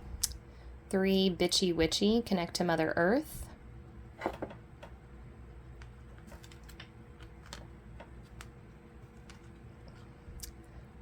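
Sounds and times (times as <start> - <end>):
cards clicking and tapping: 5.8 - 8.6.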